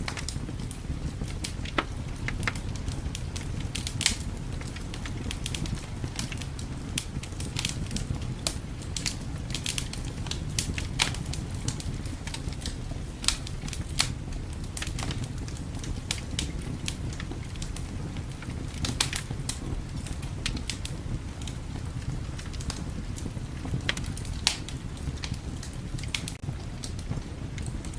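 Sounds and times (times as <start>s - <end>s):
fire crackling and popping: 0.0s - 27.9s.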